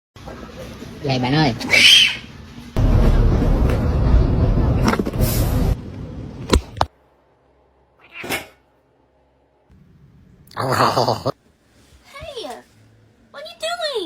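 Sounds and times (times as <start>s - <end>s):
short cat sound: 8.0s - 8.6s.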